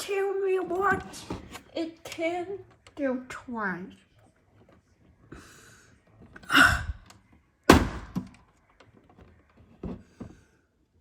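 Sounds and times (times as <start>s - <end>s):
loud thunk with ring-out: 7.7s - 8.3s.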